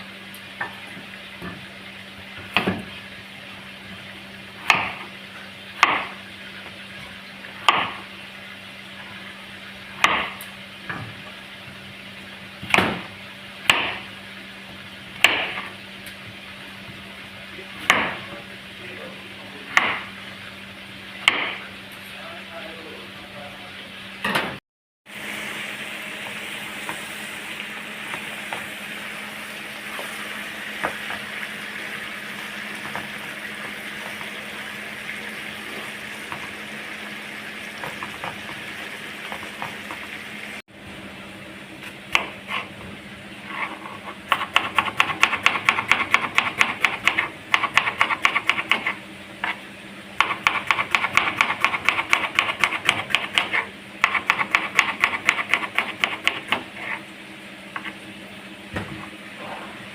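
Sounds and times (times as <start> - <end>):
food sizzling: 25.1 - 40.6.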